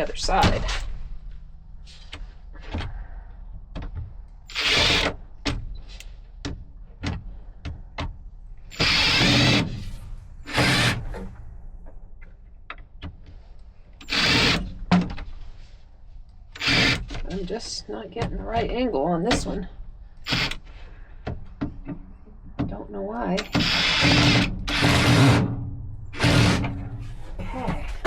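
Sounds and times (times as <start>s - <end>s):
cordless drill driving screws: 4.5s - 5.2s, 8.7s - 9.9s, 10.5s - 11.2s, 14.0s - 14.7s, 16.6s - 17.2s, 20.2s - 20.7s, 23.4s - 25.5s, 26.2s - 26.8s.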